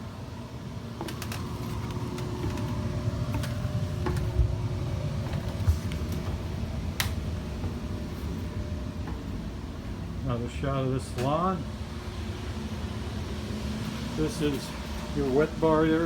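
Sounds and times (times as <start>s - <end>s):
machinery hum: 0.0s - 16.0s
small clicks and creaks: 1.0s - 4.3s
footsteps down stairs: 1.0s - 10.0s.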